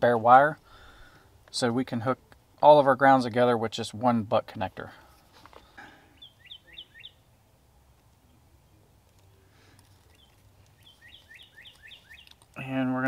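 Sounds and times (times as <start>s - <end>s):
bird chirping faintly: 6.2s - 7.3s, 8.2s - 12.8s.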